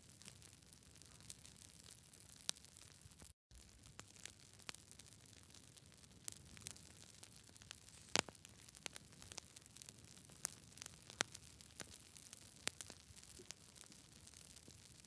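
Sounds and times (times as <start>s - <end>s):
burning wood crackling and popping: 0.0s - 15.0s
campfire hiss: 6.2s - 14.8s.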